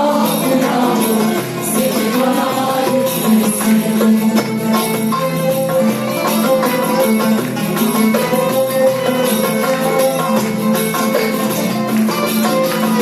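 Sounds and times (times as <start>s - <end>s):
classical music ensemble: 0.0s - 13.0s
percussion rhythm: 0.0s - 13.0s.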